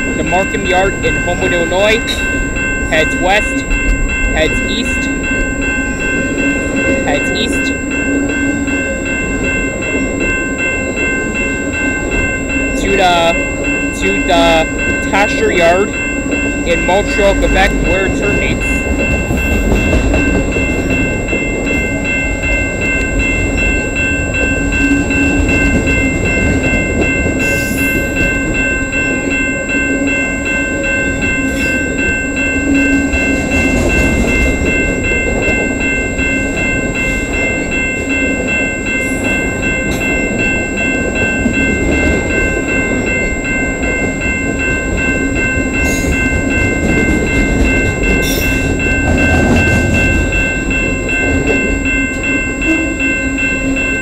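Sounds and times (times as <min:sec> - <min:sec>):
high-pitched tones: 0:00.0 - 0:40.8
freight train cars rolling past: 0:00.0 - 0:54.0.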